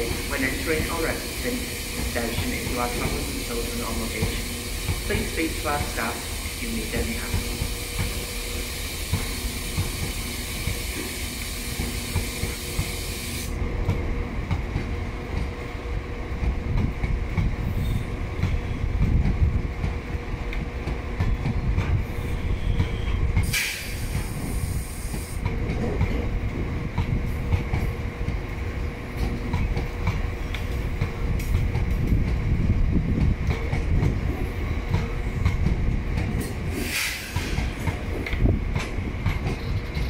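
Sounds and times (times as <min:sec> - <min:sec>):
high hiss: 0:00.0 - 0:13.5
train wheels clattering over rail joints: 0:16.4 - 0:40.0.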